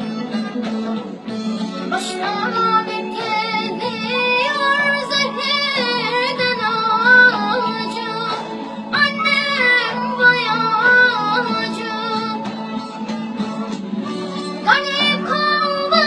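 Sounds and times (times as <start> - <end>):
backing music: 0.0 - 16.0
girl singing: 1.9 - 12.6, 14.6 - 16.0.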